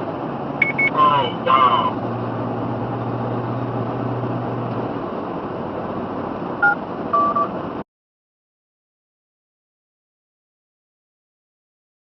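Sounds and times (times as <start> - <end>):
car running noise from inside: 0.0 - 7.8
short two-tone electronic beeps: 0.6 - 1.1, 6.6 - 7.5.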